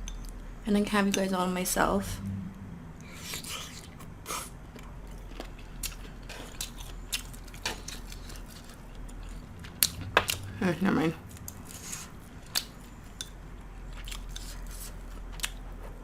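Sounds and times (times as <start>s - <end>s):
faint electrical hum: 0.0s - 16.0s
person chewing: 3.0s - 10.5s, 11.3s - 16.0s.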